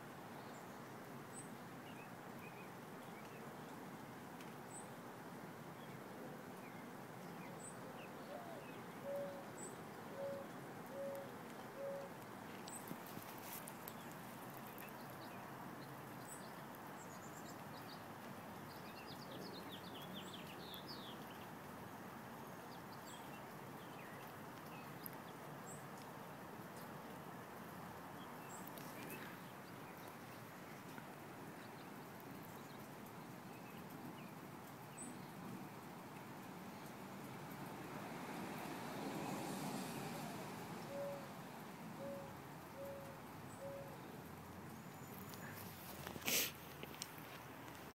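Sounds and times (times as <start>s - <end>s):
low outdoor hiss: 0.0s - 47.9s
bird chirping: 42.0s - 45.9s.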